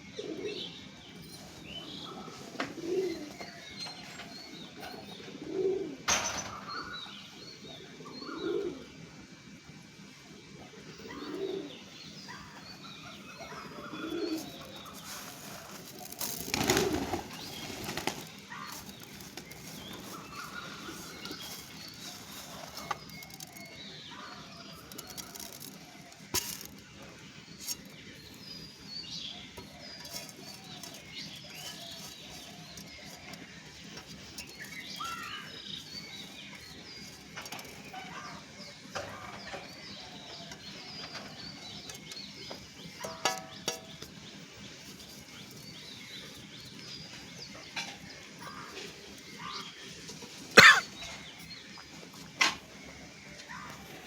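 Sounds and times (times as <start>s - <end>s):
birds chirping and calling: 0.0s - 54.0s
flurry of flapping wings: 15.0s - 18.5s.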